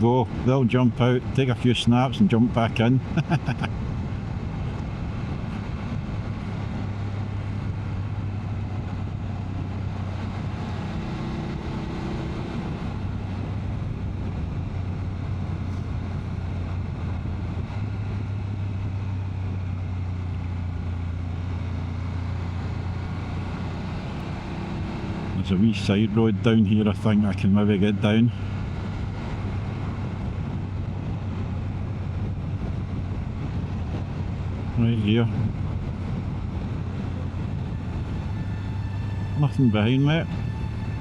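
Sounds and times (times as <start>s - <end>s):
motorcycle engine running: 4.0s - 26.0s, 35.5s - 41.0s
wind rushing: 35.4s - 41.0s.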